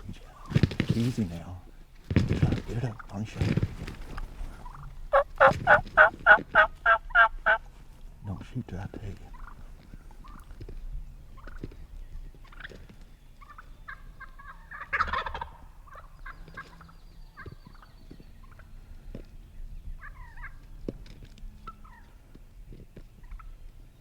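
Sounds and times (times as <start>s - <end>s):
turkey calls: 0.0s - 7.7s, 8.3s - 19.3s, 19.9s - 22.4s, 23.2s - 23.7s
turkeys gobbling: 2.4s - 7.7s, 9.3s - 10.6s, 11.4s - 11.7s, 13.4s - 16.8s, 20.0s - 20.6s, 21.6s - 22.1s.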